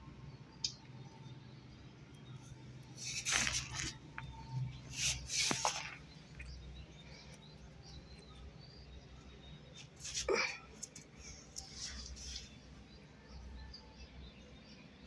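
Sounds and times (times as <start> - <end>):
scratchy rustling: 3.0 - 4.2, 4.8 - 6.2.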